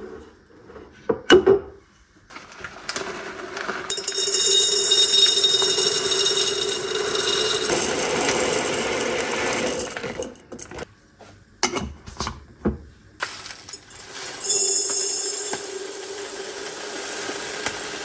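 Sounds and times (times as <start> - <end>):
kitchen appliance motor humming: 3.5 - 10.8.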